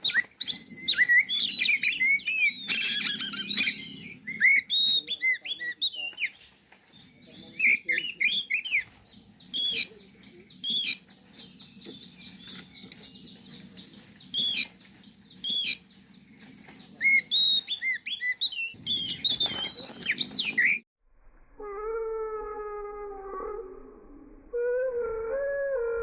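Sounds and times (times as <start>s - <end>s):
bird whistling and chattering: 0.0s - 15.9s, 16.6s - 20.8s
low drawn-out wail: 21.6s - 26.0s.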